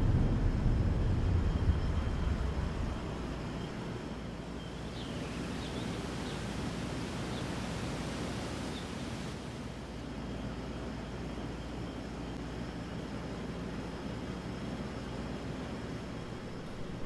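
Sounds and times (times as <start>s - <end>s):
low hum: 0.0s - 9.7s.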